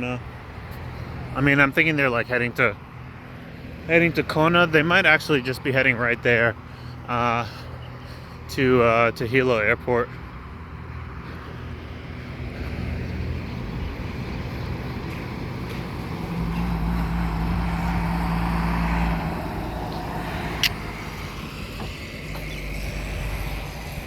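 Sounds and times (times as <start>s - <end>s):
outdoor background noise: 0.0s - 24.0s
passing vehicle engine: 10.1s - 24.0s
sharp click: 20.6s - 20.8s.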